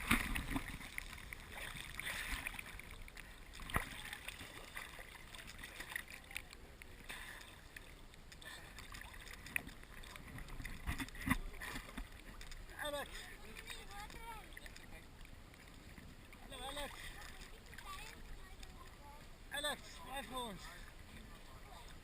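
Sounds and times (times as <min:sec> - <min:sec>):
faint wash of water: 0:00.0 - 0:22.0
small splashes: 0:00.0 - 0:22.0.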